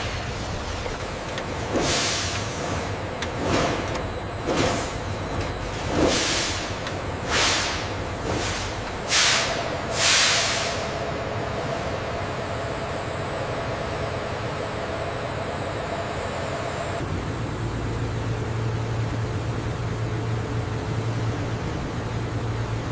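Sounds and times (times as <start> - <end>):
factory machinery rumble and hum: 0.0 - 22.9
short hiss sweeping down: 9.1 - 10.9.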